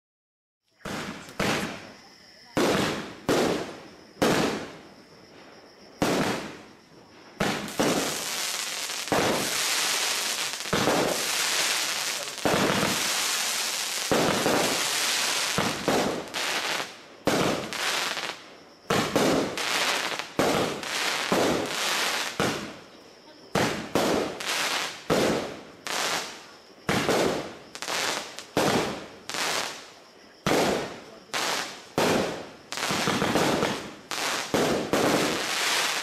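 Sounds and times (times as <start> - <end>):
fireworks battery firing: 7.4 - 22.8, 30.5 - 36.0.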